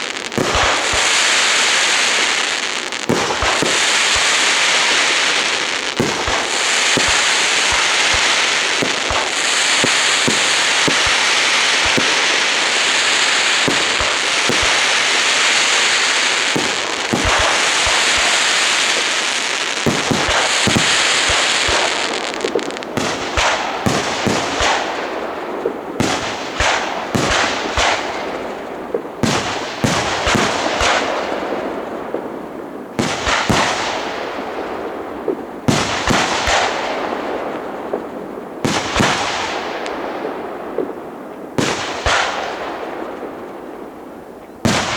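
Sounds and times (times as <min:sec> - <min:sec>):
firework shells bursting: 0:00.0 - 0:32.4
fireworks crackling: 0:00.0 - 0:44.9.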